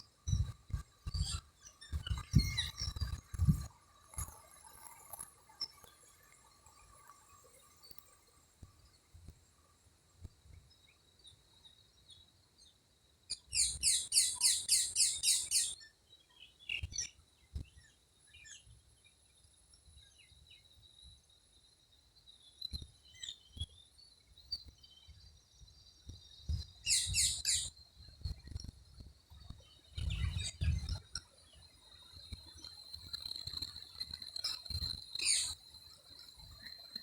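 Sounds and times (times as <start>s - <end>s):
soft bird chirps: 10.7s - 19.1s, 22.5s - 27.8s, 34.4s - 35.6s.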